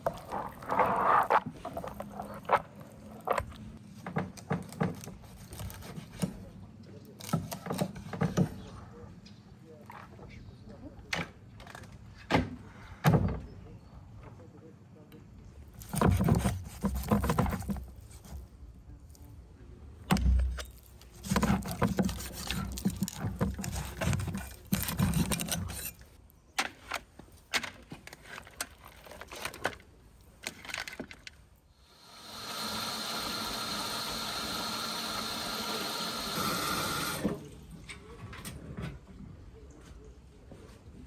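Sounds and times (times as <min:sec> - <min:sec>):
handling knocks and clatter: 0:00.0 - 0:06.4, 0:15.7 - 0:18.5, 0:20.0 - 0:31.5.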